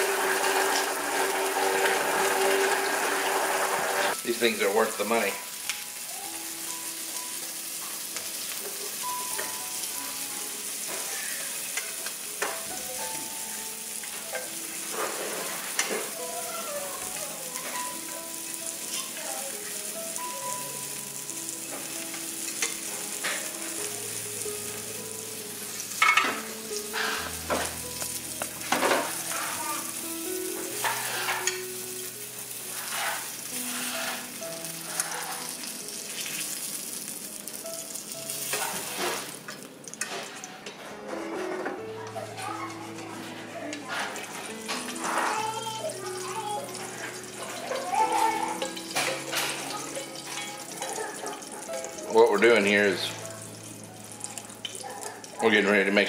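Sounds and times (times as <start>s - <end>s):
utensil scraping and knocking pans: 0.0s - 4.2s, 14.1s - 16.2s, 26.0s - 29.6s, 30.5s - 31.7s, 32.6s - 36.3s, 42.8s - 45.4s, 46.7s - 52.4s
sausage sizzling in a frying pan: 0.0s - 40.6s, 42.2s - 56.0s.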